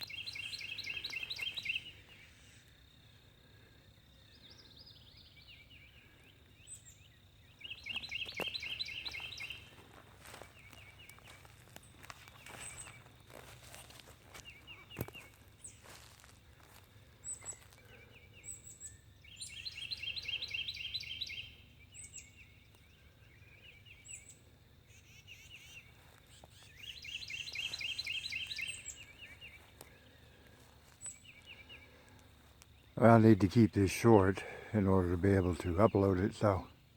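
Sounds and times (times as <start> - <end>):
bird song of fast high notes: 0.0 - 3.0, 4.2 - 13.8, 17.3 - 30.1
small birds chirping: 0.0 - 36.9.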